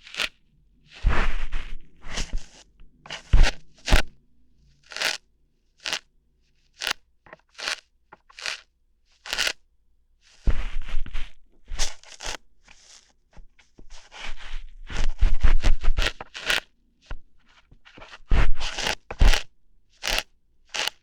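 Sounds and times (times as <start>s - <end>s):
ear hairs being plucked: 0.0s - 0.4s, 1.1s - 4.2s, 4.8s - 5.2s, 5.8s - 6.0s, 6.7s - 8.6s, 9.2s - 9.6s, 11.8s - 13.0s, 15.6s - 16.7s, 18.6s - 21.0s.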